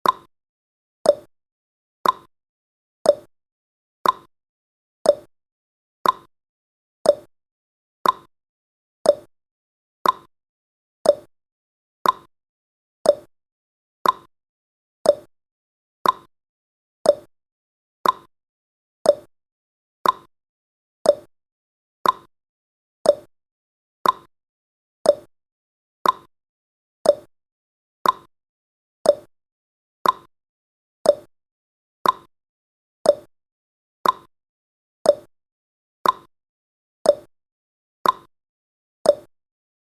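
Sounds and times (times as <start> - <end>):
clock ticking: 2.0 - 2.3, 6.0 - 6.3, 8.0 - 8.3, 10.0 - 10.3, 12.0 - 12.3, 14.0 - 14.3, 15.1 - 15.3, 16.0 - 16.3, 18.0 - 18.3, 20.0 - 20.3, 21.1 - 21.3, 22.0 - 22.3, 24.0 - 24.3, 25.1 - 25.3, 26.0 - 26.3, 27.1 - 27.3, 28.0 - 28.3, 29.1 - 29.3, 30.0 - 30.3, 31.1 - 31.3, 32.0 - 32.3, 34.0 - 34.3, 36.0 - 36.3, 38.0 - 38.3.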